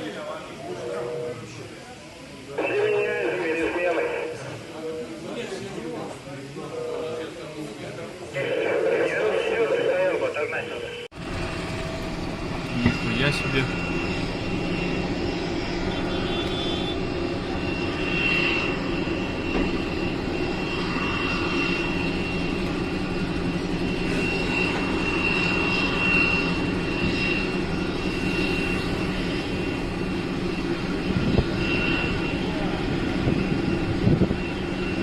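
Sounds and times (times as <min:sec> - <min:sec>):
aircraft engine hum and whine: 0:00.0 - 0:35.0.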